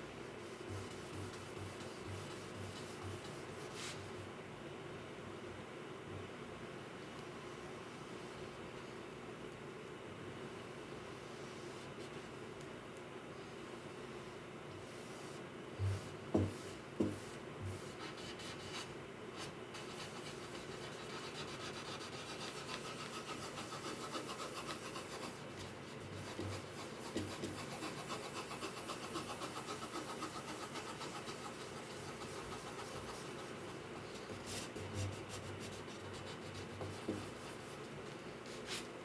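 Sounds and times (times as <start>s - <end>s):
hand rubbing on wood: 0.4s - 4.1s, 19.8s - 38.9s.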